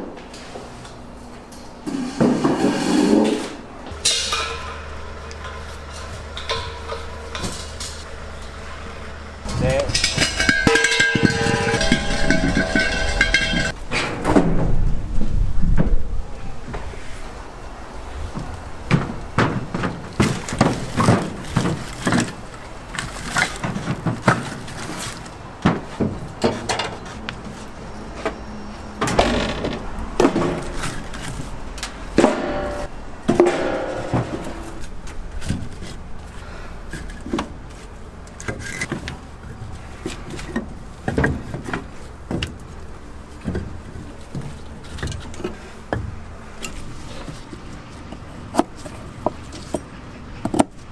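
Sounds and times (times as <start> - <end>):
objects knocking and clattering: 3.9 - 8.8, 9.4 - 14.6, 18.9 - 27.5, 29.0 - 37.8.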